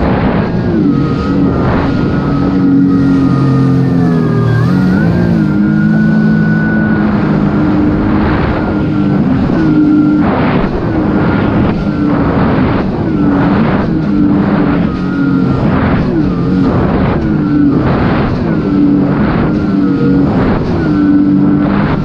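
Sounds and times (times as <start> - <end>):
bursts of rushing water: 0.0 - 22.0
jet ski engine running: 0.0 - 22.0.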